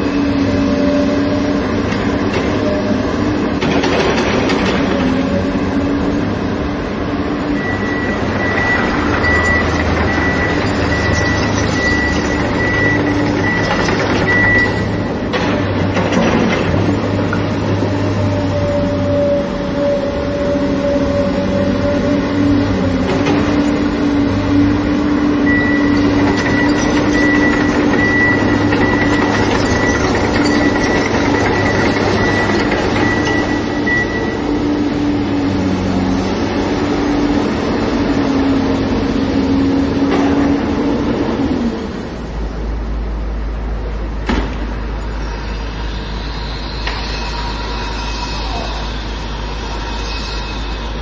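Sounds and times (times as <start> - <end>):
excavator engine drone: 0.0 - 51.0
thin high whine: 45.1 - 51.0.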